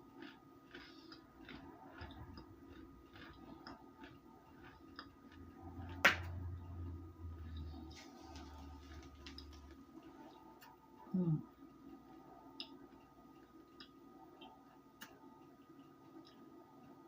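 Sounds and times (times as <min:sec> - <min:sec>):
chewing crunchy food: 0:00.0 - 0:10.8
low rumble: 0:05.4 - 0:09.8.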